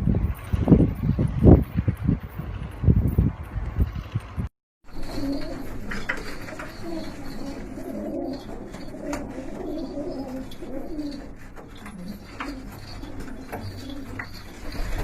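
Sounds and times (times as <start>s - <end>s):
pigeons cooing: 4.9s - 15.0s.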